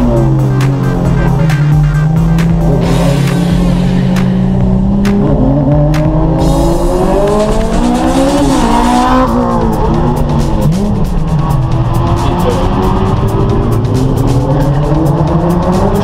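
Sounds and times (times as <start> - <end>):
car engine accelerating: 0.0 - 16.0
electronic music: 0.0 - 16.0.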